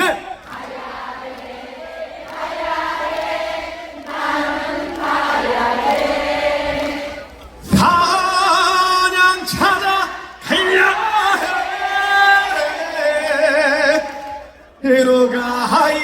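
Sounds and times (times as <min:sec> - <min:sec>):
audience singing together: 0:00.0 - 0:08.0, 0:09.7 - 0:14.4.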